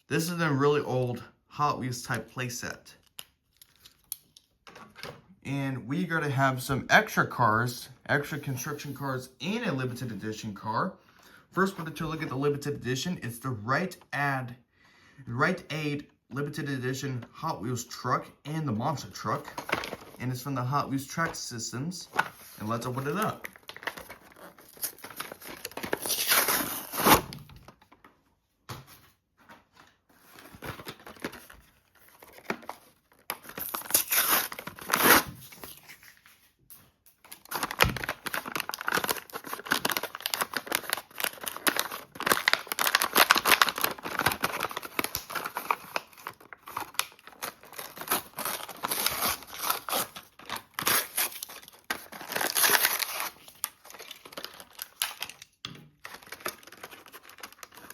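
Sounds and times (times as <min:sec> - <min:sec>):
plastic crinkling: 0:22.2 - 0:28.1, 0:37.1 - 0:57.9
cardboard ripping: 0:22.4 - 0:27.5, 0:30.5 - 0:36.1, 0:37.4 - 0:55.4.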